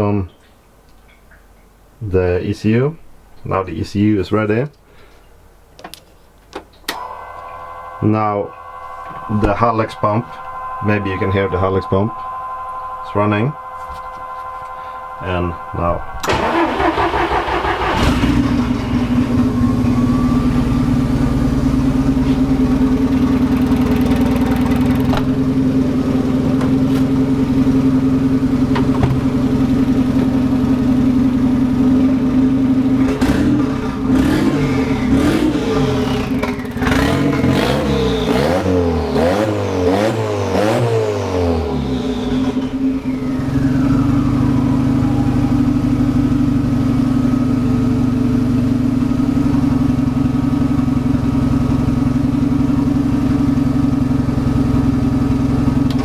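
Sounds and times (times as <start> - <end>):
car engine idling and revving: 16.2 - 56.0.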